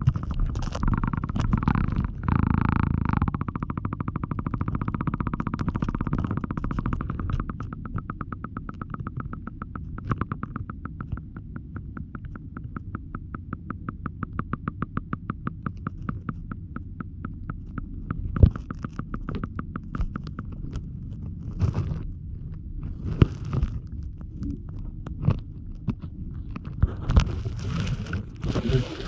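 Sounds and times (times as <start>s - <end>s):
muffled underwater rumble: 0.0s - 29.0s
scattered knocks: 0.2s - 20.7s
regular ticking: 0.6s - 20.8s.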